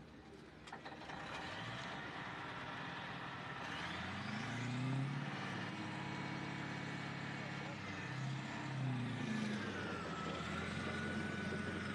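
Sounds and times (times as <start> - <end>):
vehicle engine revving: 3.6 - 11.9.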